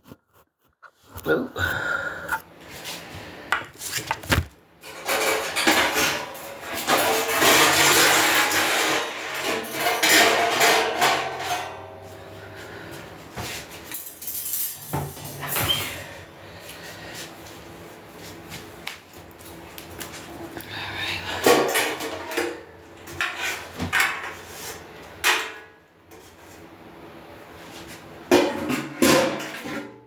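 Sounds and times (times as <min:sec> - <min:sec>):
knocks and clatters of grill parts: 0:03.6 - 0:12.3, 0:13.0 - 0:16.0, 0:21.4 - 0:26.3, 0:28.2 - 0:30.0.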